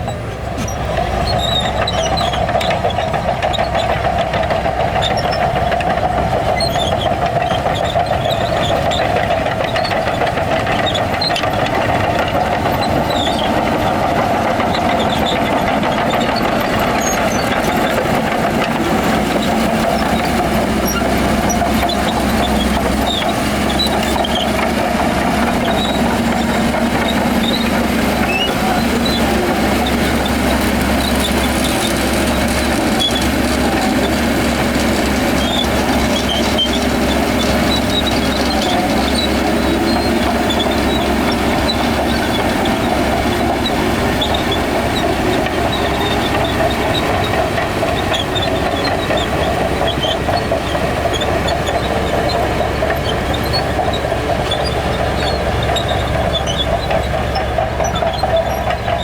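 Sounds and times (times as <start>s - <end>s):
heavy diesel machinery engine drone: 0.0s - 59.0s.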